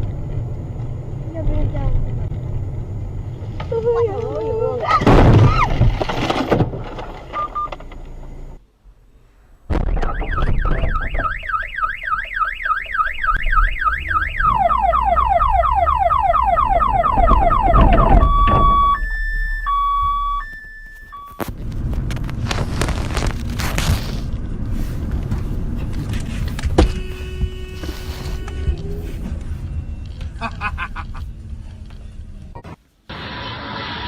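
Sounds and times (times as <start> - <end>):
crash-like thump: 5.0 - 7.2, 9.6 - 11.4, 17.1 - 19.6
car alarm: 7.4 - 7.8, 10.0 - 21.5.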